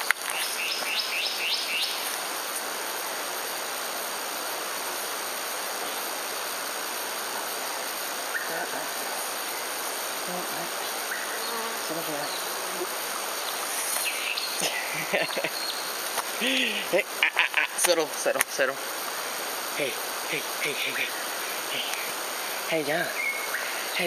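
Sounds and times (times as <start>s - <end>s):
steady outdoor hiss: 0.0s - 24.0s
bird whistling: 23.2s - 23.7s.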